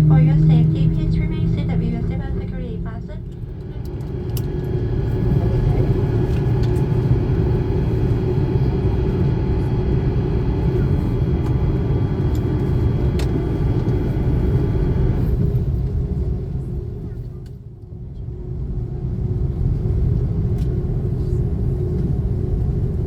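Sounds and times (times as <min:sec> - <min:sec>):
steady hum tones: 0:00.0 - 0:14.9
jet engine rumble in cabin: 0:00.0 - 0:23.0.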